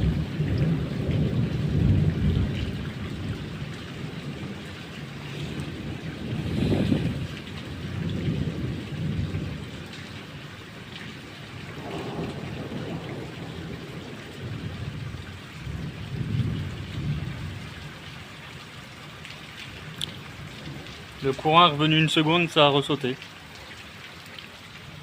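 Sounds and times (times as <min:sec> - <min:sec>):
thunder rumbling: 0:00.0 - 0:09.9, 0:11.6 - 0:17.8
heavy rain hiss: 0:00.0 - 0:18.0, 0:19.7 - 0:24.0.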